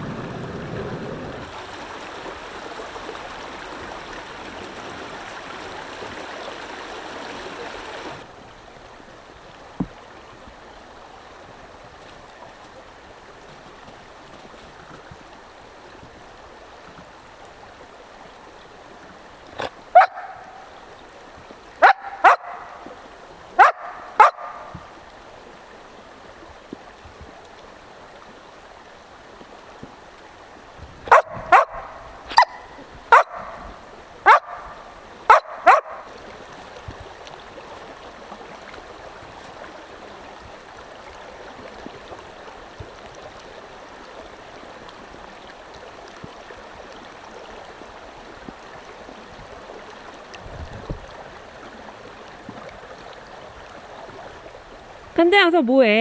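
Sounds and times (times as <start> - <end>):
stream running: 0.0 - 56.0
dog barking: 20.0 - 20.6, 21.8 - 22.8, 23.6 - 24.7, 31.1 - 33.6, 34.2 - 36.1.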